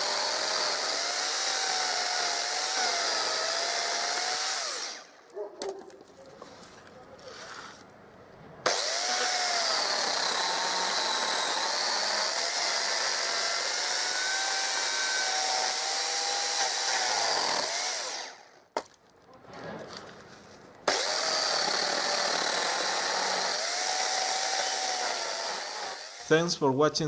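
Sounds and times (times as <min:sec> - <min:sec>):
chainsaw cutting branches: 0:00.0 - 0:05.2, 0:08.7 - 0:18.6, 0:20.8 - 0:26.2.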